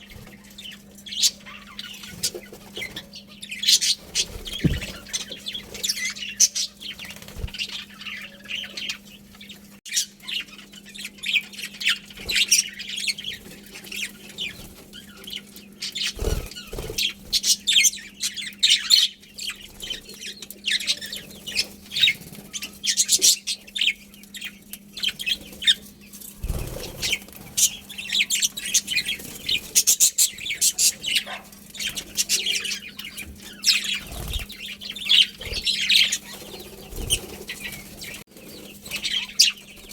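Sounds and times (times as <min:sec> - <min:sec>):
budgerigars chirping: 0:00.0 - 0:09.2, 0:26.5 - 0:39.9
low thumps: 0:04.6 - 0:05.0.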